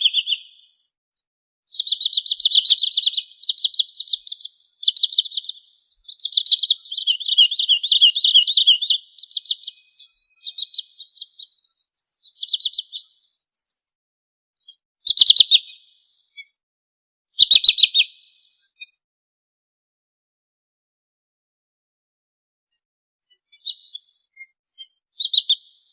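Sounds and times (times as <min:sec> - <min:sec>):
sandpiper trilled calls: 0:01.7 - 0:11.6, 0:17.4 - 0:18.1.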